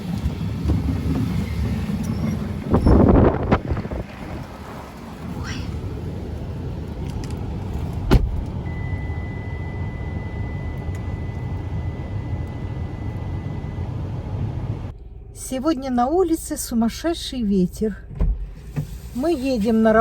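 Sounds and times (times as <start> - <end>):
car rumbling: 0.0 - 20.0
wind: 0.0 - 20.0
faint high-pitched tone: 8.7 - 14.4.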